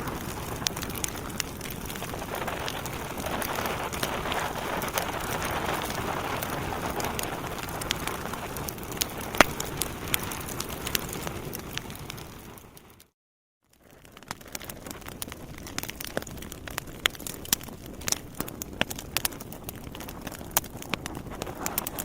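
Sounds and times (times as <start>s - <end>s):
flames hissing: 0.0s - 13.0s
fire crackling and popping: 0.0s - 22.0s.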